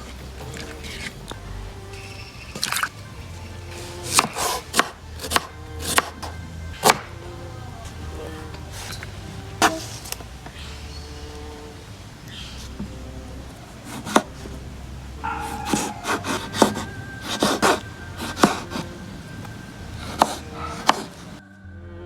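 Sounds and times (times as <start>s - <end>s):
soft background music: 0.0s - 22.0s
knife scraping board: 3.7s - 6.2s, 13.9s - 14.3s, 15.4s - 18.9s, 20.0s - 21.4s
knife chopping on wooden board: 4.0s - 7.1s, 13.9s - 14.3s, 15.4s - 18.9s, 20.0s - 21.3s.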